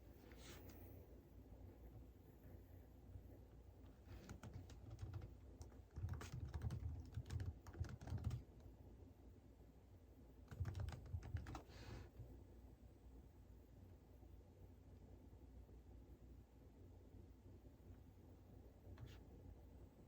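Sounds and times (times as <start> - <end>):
typing on computer keyboard: 4.1 - 8.7, 10.4 - 11.7.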